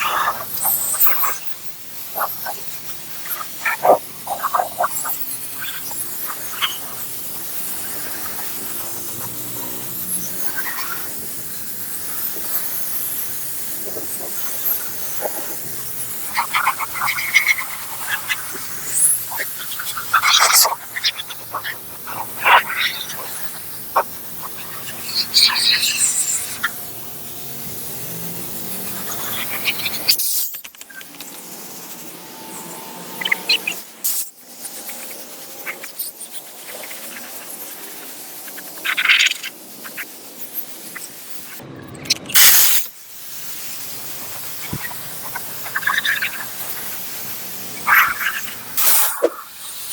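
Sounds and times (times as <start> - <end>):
steam jet hissing: 0.0 - 41.6, 42.4 - 49.9
rapid stuttering chirp: 10.0 - 41.2
small clicks and scrapes: 28.8 - 31.9.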